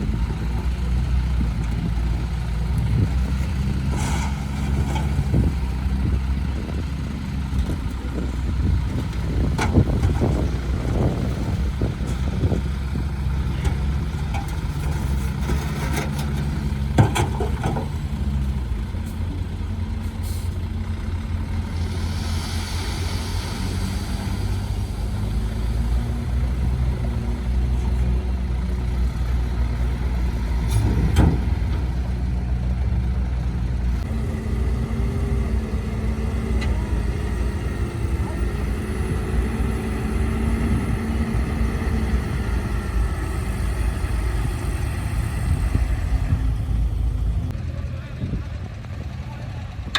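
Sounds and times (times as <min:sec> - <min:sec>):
truck diesel engine running: 0:00.0 - 0:49.9
metal clanks and knocks: 0:13.4 - 0:19.4
air hiss: 0:21.8 - 0:25.2.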